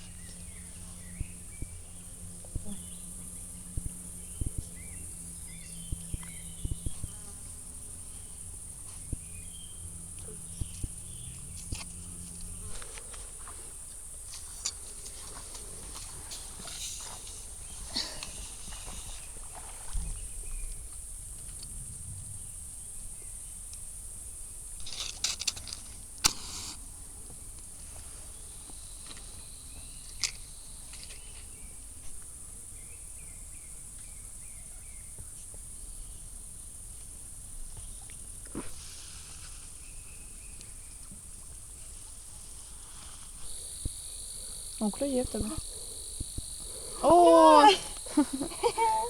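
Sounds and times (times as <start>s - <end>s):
insects chirring: 0.0s - 49.0s
sharp clicks: 24.8s - 26.8s.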